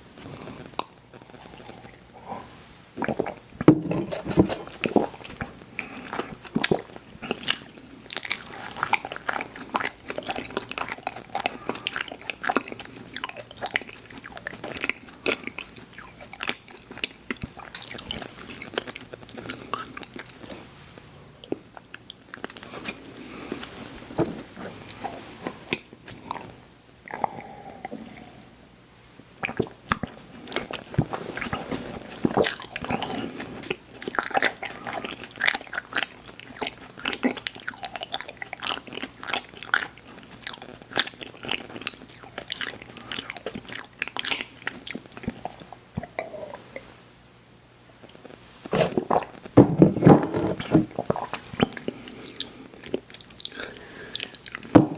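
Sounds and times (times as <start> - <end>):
chewing crisp cookies: 4.1 - 28.6, 29.4 - 49.6, 50.6 - 54.8.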